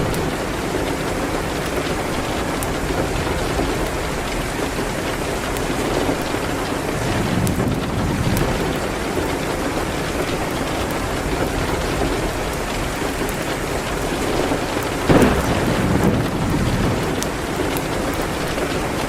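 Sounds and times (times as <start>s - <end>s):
loud rumbling crack: 0.0s - 10.3s, 14.2s - 19.0s
heavy rain: 0.0s - 19.0s
wood fire crackling: 0.0s - 19.0s.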